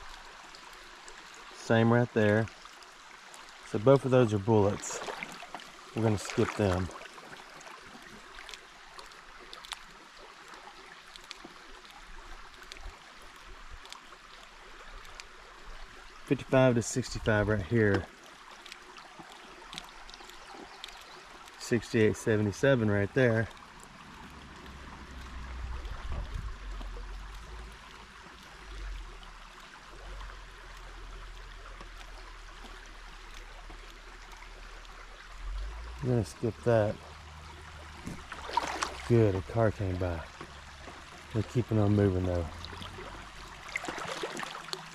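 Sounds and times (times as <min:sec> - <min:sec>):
creek water running: 0:00.0 - 0:44.9
small sharp splashes: 0:04.5 - 0:16.4, 0:22.6 - 0:44.9
low rumble: 0:24.1 - 0:28.1.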